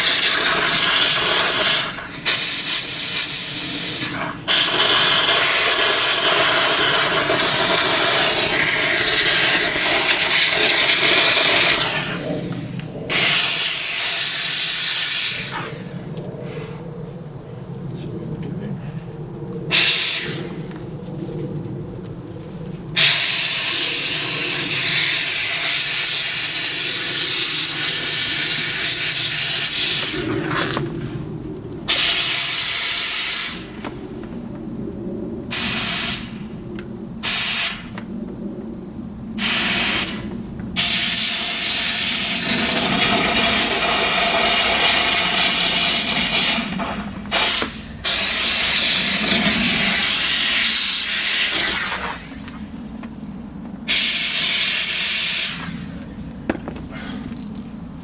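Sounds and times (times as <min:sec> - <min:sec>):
steam cleaner jet hissing: 0:00.0 - 0:12.3, 0:13.1 - 0:15.8, 0:19.7 - 0:20.4, 0:23.0 - 0:30.3, 0:31.9 - 0:33.8, 0:35.5 - 0:36.4, 0:39.4 - 0:52.3, 0:53.9 - 0:55.8.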